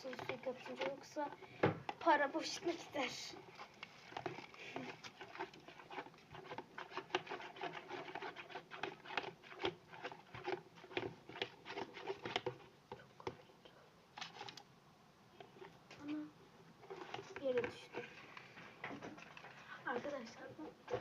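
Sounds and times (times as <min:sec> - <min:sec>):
spoon scraping a bowl: 0:03.4 - 0:12.7, 0:16.8 - 0:18.2.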